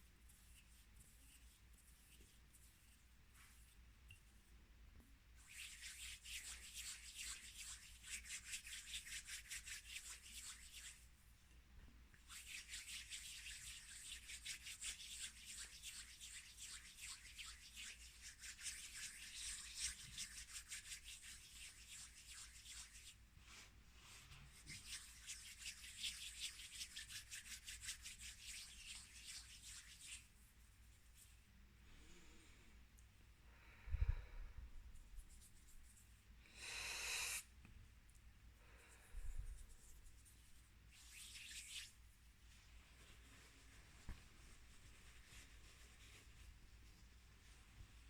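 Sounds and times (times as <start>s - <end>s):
scratchy rubbing close up: 5.4s - 11.1s, 12.3s - 31.3s, 35.2s - 36.2s, 39.4s - 47.8s.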